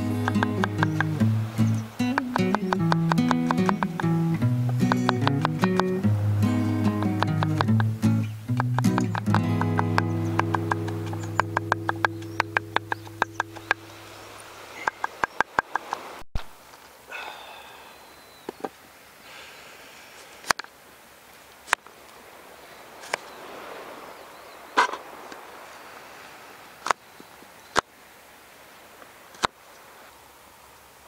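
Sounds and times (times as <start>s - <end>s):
sharp knocks: 2.1s - 6.0s, 8.5s - 13.8s.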